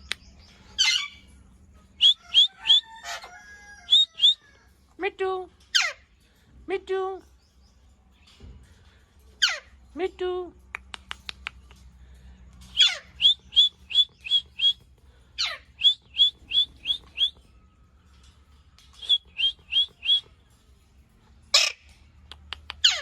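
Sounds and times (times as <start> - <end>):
parrot squawk: 0.8 - 1.2, 2.0 - 4.4, 5.7 - 6.1, 9.4 - 9.7, 12.7 - 14.7, 15.4 - 17.3, 21.5 - 21.9, 22.8 - 23.0
parrot calling shrill notes: 0.8 - 1.3, 2.0 - 4.6, 5.7 - 6.1, 9.4 - 9.8, 12.7 - 14.8, 15.4 - 17.4, 18.8 - 20.4, 21.5 - 22.0, 22.8 - 23.0.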